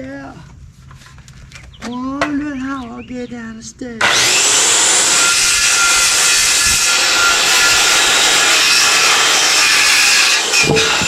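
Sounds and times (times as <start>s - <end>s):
power saw cutting wood: 4.0s - 11.0s.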